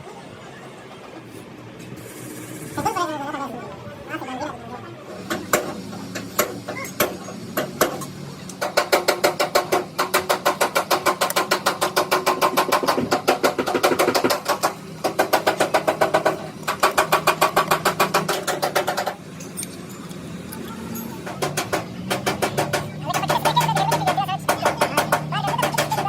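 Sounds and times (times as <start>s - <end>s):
hammer striking metal: 5.3s - 19.2s, 21.0s - 26.0s.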